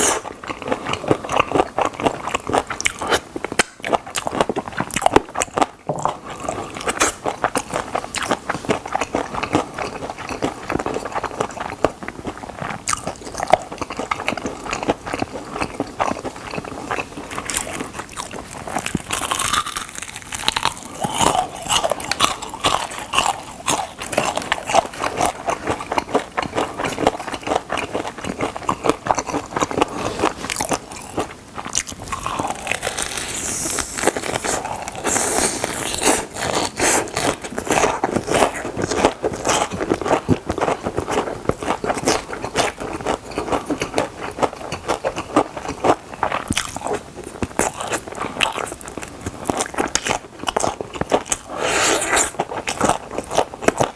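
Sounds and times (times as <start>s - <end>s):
crunching bites of fried chicken: 17.5s - 30.0s.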